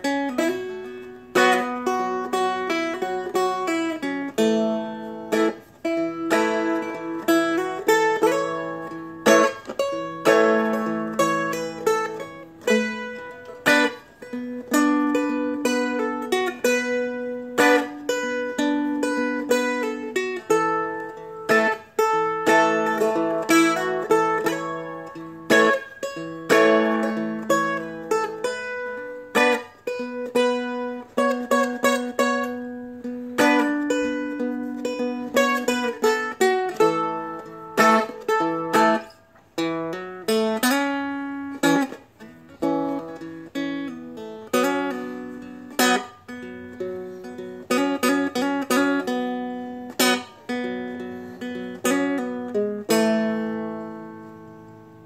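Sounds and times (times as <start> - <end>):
fingerpicked strumstick melody: 0.0 - 55.0.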